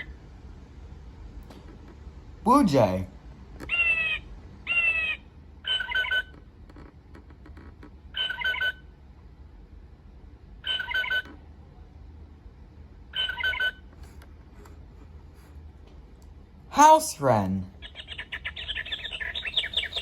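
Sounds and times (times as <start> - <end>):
blue jay calls from small speaker: 3.7 - 6.3, 17.8 - 20.0.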